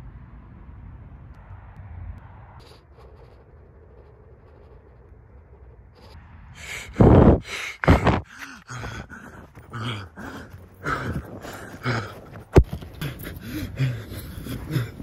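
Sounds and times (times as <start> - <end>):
camera rubbing noise: 2.6 - 6.2.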